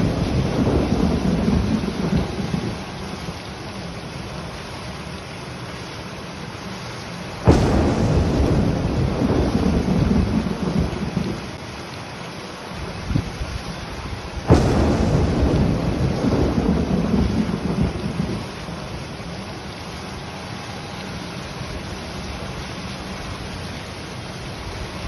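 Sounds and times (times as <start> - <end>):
thunder rumbling: 0.0 - 3.4, 7.4 - 11.6, 14.4 - 19.6
heavy rain falling: 0.0 - 25.0.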